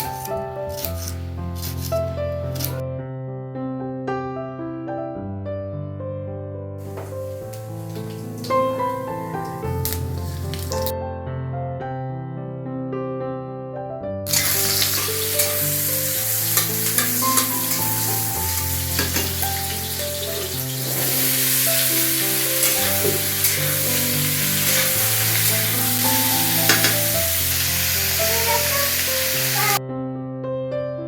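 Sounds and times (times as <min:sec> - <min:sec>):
food sizzling in hot oil: 0:00.0 - 0:02.8, 0:06.8 - 0:10.9, 0:14.3 - 0:29.8
gentle keyboard music: 0:00.0 - 0:03.0, 0:03.6 - 0:31.0.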